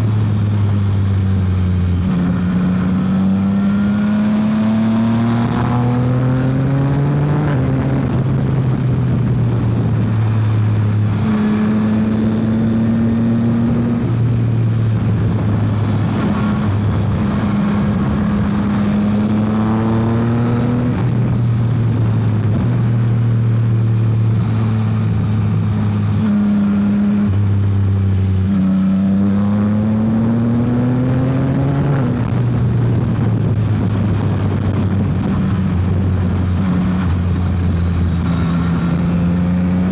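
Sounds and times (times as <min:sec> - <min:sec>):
motorcycle engine at speed: 0:00.0 - 0:39.9
wind rushing: 0:29.1 - 0:39.9.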